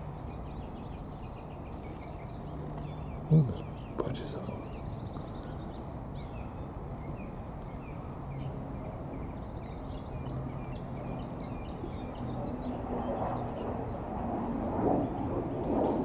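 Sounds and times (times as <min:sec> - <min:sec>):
small songbirds chirping: 0:00.0 - 0:16.0
steady low hum: 0:01.7 - 0:08.0.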